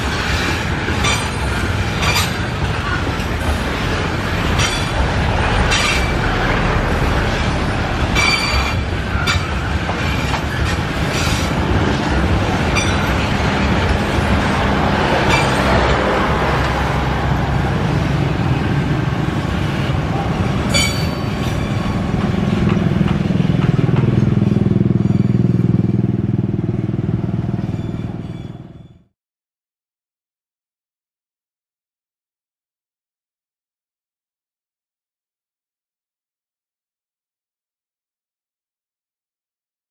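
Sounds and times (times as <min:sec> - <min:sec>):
freight train rumbling on rails: 0:00.0 - 0:29.1
wheel clacks over rail joints: 0:00.1 - 0:05.1, 0:08.2 - 0:16.9, 0:20.2 - 0:25.8
low engine hum: 0:04.9 - 0:08.2.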